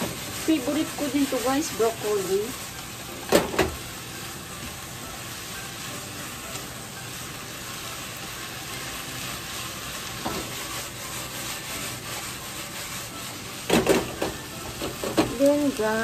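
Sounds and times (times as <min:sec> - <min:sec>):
chopsticks scraping pan: 0:00.0 - 0:03.0, 0:08.7 - 0:16.0
food sizzling in frying pan: 0:00.0 - 0:16.0.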